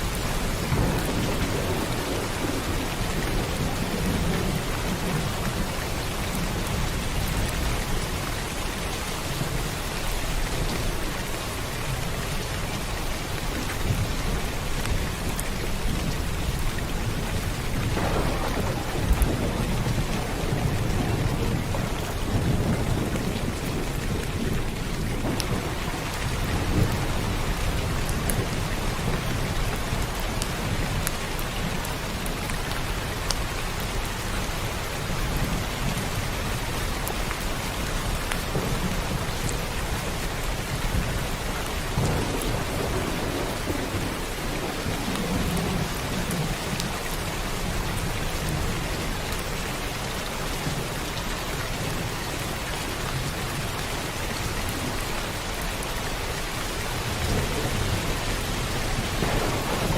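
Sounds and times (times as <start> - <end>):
thunder rumbling: 0.0 - 8.2, 13.8 - 31.9, 38.0 - 49.1, 56.9 - 59.9
rain falling: 0.0 - 59.9.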